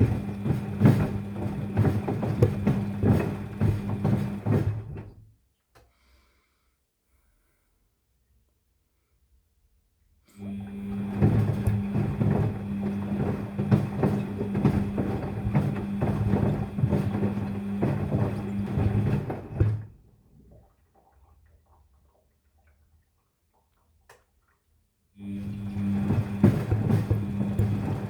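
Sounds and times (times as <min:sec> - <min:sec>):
water sloshing: 0:00.0 - 0:05.0, 0:10.8 - 0:24.7, 0:25.4 - 0:28.0
laundry knocking in drum: 0:00.0 - 0:05.1, 0:10.9 - 0:19.9, 0:25.5 - 0:28.0
washing machine motor hum: 0:00.0 - 0:05.2, 0:10.4 - 0:21.1, 0:25.2 - 0:28.0.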